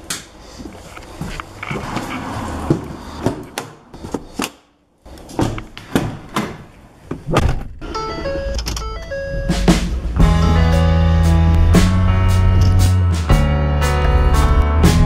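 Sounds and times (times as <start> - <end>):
music with held notes: 8.0 - 15.0.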